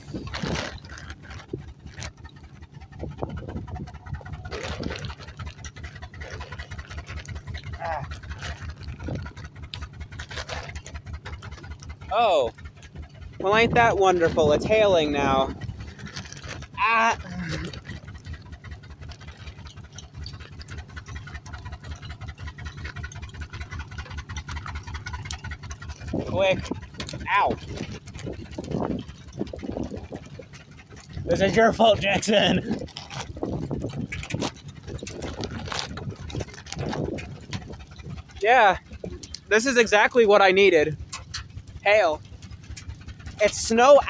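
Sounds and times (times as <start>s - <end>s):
truck rumbling: 0.0s - 44.0s.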